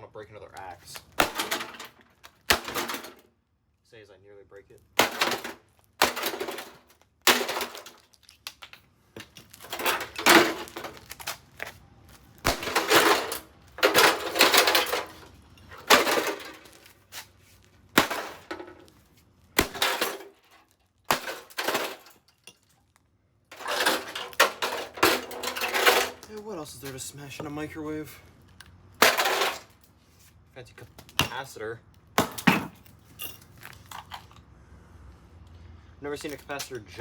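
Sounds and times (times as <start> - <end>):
loose metal clattering: 1.2 - 3.2, 9.2 - 11.2, 12.5 - 16.9, 18.0 - 18.9, 23.5 - 26.4.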